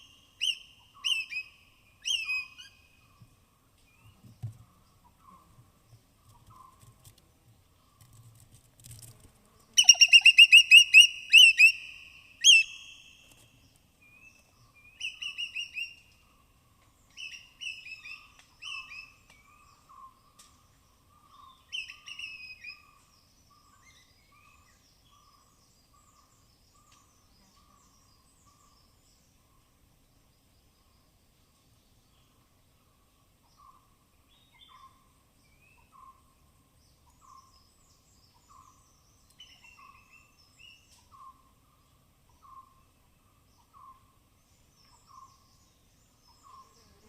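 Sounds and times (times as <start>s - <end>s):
high-pitched animal chirps: 9.8s - 13.0s.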